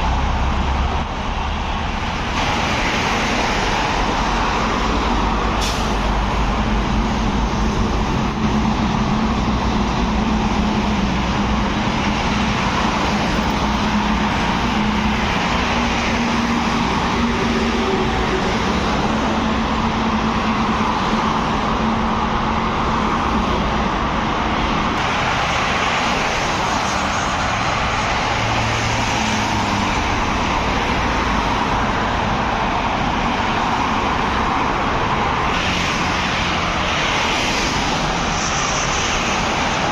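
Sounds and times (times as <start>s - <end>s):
vehicles driving past: 0.0s - 39.9s.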